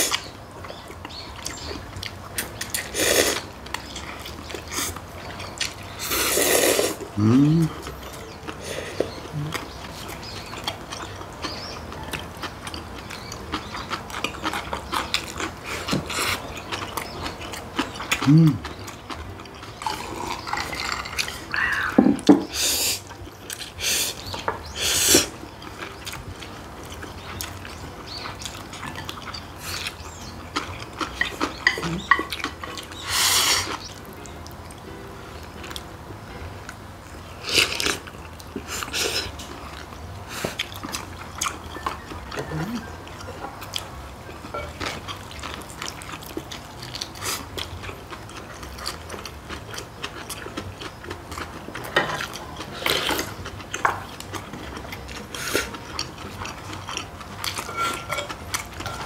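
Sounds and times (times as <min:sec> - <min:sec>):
wet chewing: 0:00.0 - 0:36.0, 0:36.6 - 0:59.0
loud noodle slurps: 0:06.0 - 0:07.0.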